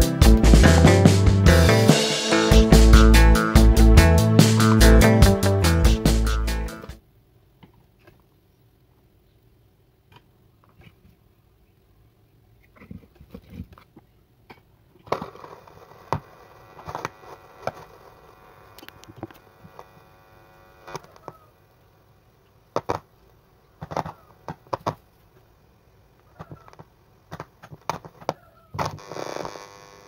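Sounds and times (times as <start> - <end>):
speaker clicks and crackles: 12.6 - 20.1
buzzing mains hum: 15.2 - 22.7, 28.8 - 30.0.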